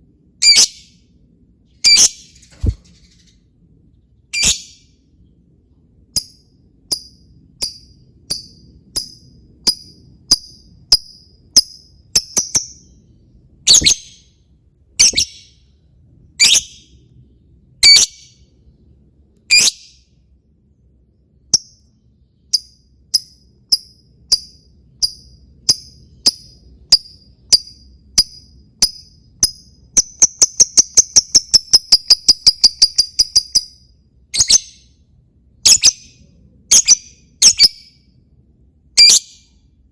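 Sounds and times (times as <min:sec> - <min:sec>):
lovebird chirping: 0:00.4 - 0:01.0, 0:01.8 - 0:03.4, 0:04.3 - 0:04.9, 0:06.2 - 0:14.3, 0:15.0 - 0:15.6, 0:16.4 - 0:17.0, 0:17.8 - 0:18.4, 0:19.5 - 0:20.0, 0:21.5 - 0:35.0, 0:35.6 - 0:38.0, 0:39.0 - 0:39.5.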